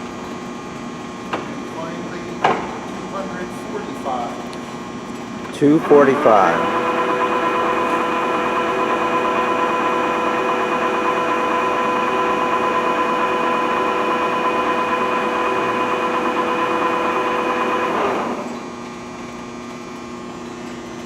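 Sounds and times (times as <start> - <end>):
lathe motor hum: 5.5 - 19.4
lathe gear whine: 5.6 - 20.0.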